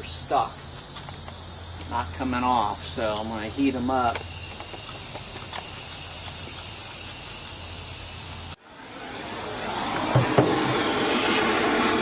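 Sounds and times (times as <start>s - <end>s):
heating torch hissing: 7.2s - 12.0s.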